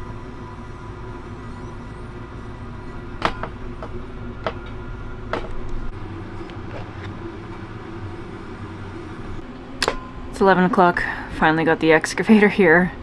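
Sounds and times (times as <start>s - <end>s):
heavy vehicle engine running: 0.0s - 13.0s
sharp clanks and knocks: 3.2s - 7.1s.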